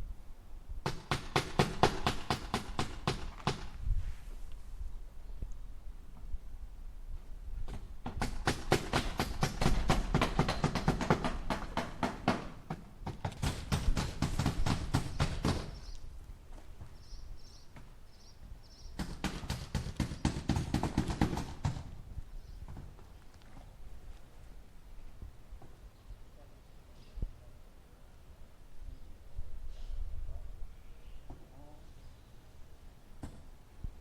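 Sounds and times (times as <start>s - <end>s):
hammer driving nails into wood: 0.8s - 3.8s, 7.7s - 15.9s, 19.0s - 21.9s.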